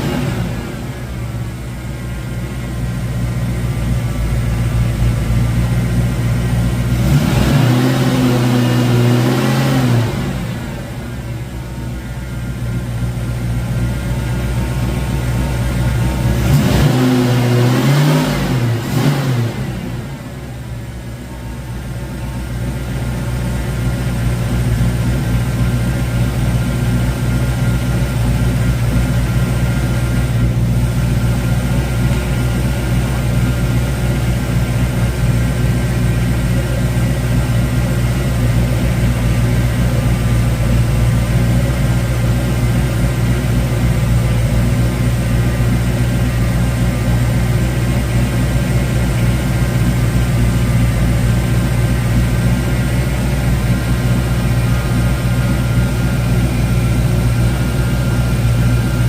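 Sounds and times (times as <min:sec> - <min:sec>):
car engine revving and idling: 0:00.0 - 0:59.0.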